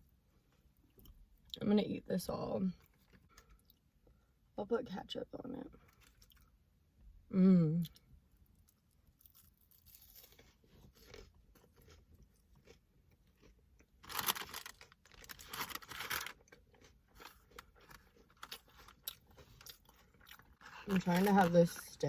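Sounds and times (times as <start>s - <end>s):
person chewing and crunching food: 2.8s - 4.2s, 5.8s - 6.6s, 7.8s - 22.0s.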